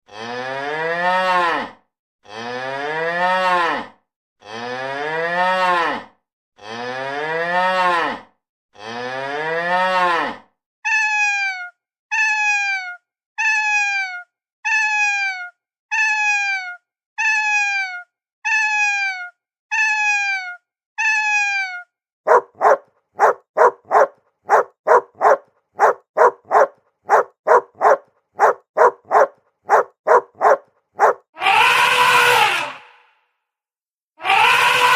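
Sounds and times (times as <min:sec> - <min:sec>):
cow mooing: 0:00.1 - 0:01.7.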